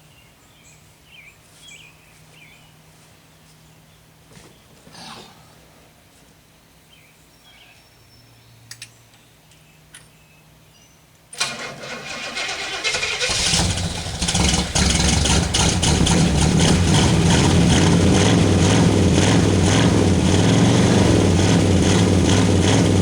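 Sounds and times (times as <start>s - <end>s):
starter cranking engine: 11.4s - 23.0s
car engine running: 13.3s - 23.0s.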